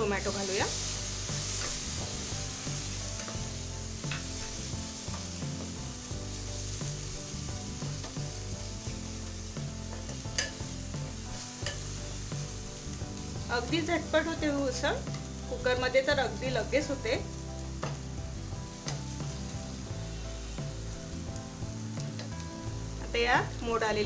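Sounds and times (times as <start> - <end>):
food sizzling in hot oil: 0.0 - 24.0
spatula scraping and knocking pot: 10.1 - 10.8.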